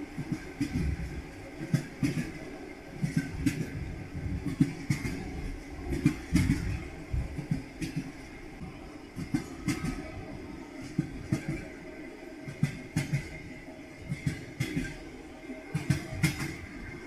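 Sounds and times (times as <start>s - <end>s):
train wheels clacking over rail joints: 0.2s - 2.4s, 3.0s - 8.3s, 9.2s - 10.2s, 10.8s - 11.7s, 12.5s - 15.0s, 15.7s - 16.8s.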